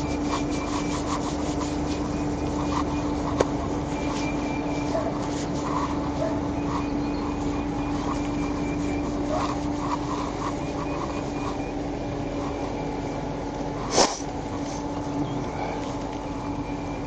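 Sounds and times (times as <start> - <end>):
constant low hum: 0.0 - 17.0
road and engine noise in car: 0.0 - 17.0.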